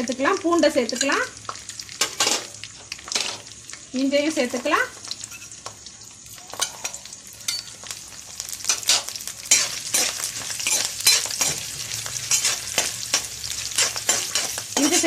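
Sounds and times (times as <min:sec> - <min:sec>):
spices sizzling in hot oil: 0:00.0 - 0:15.0
spatula scraping and knocking pan: 0:08.6 - 0:15.0.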